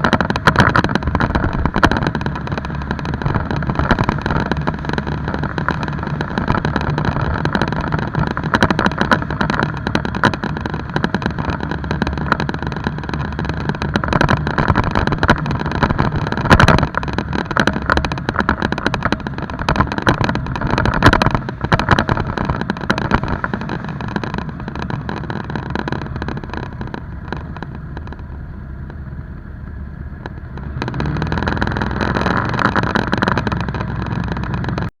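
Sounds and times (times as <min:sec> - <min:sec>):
dense rushing noise: 0:00.0 - 0:34.9
motorcycle engine running: 0:00.0 - 0:34.9.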